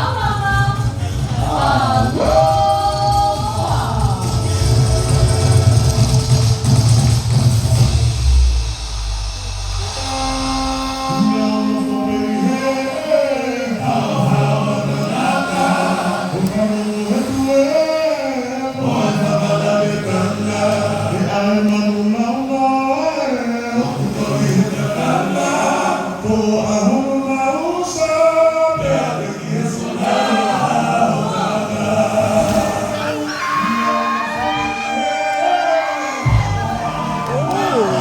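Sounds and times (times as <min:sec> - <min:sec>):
choir singing in harmony: 0:00.0 - 0:06.7, 0:09.9 - 0:38.0.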